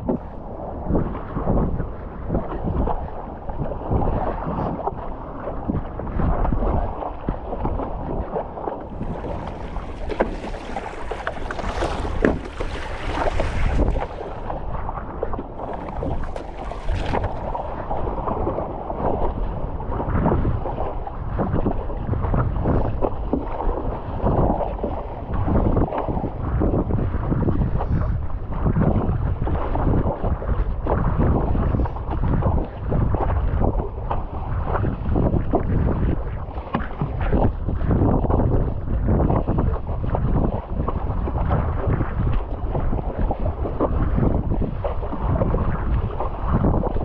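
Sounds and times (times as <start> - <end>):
wind buffeting microphone: 0.0 - 47.0
water sloshing and splashing: 2.4 - 26.2, 39.7 - 47.0.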